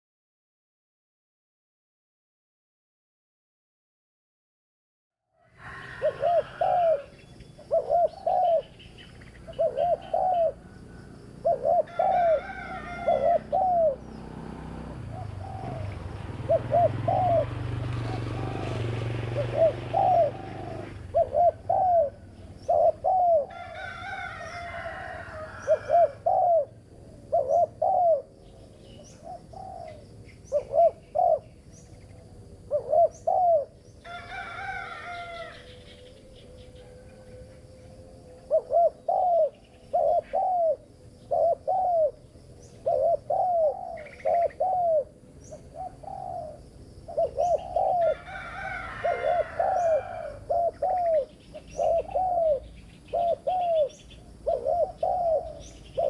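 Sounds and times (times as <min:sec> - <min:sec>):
dove cooing: 0:05.4 - 0:56.0
bird chirping: 0:06.8 - 0:12.4, 0:19.0 - 0:23.6, 0:27.3 - 0:34.1, 0:37.6 - 0:48.2, 0:49.1 - 0:56.0.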